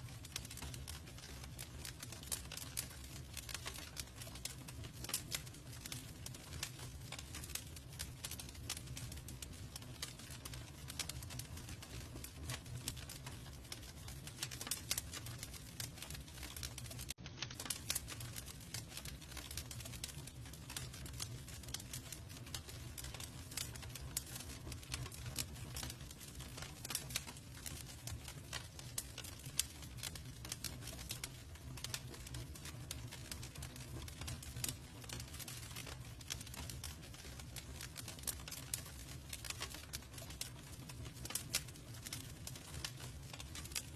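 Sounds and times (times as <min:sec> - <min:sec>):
campfire wood crackling: 0:00.0 - 0:43.9
fire low rumble: 0:00.0 - 0:43.9.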